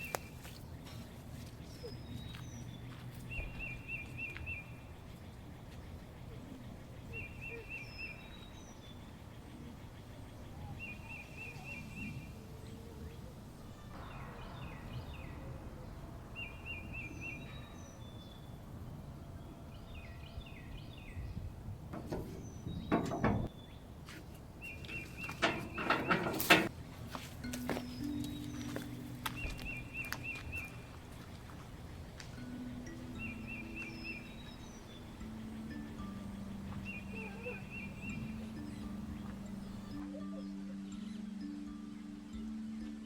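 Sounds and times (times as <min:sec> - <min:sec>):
steady low background noise: 0:00.0 - 0:43.0
loud knocks: 0:21.9 - 0:23.5
bird trilling: 0:32.4 - 0:41.2.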